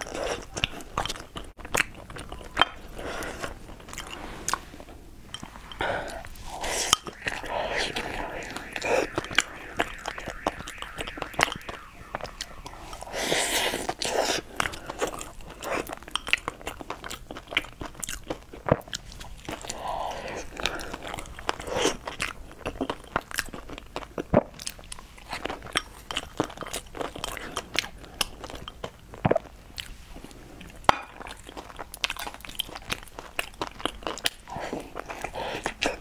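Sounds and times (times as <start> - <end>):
person chewing food: 0.0 - 7.0, 14.6 - 36.0.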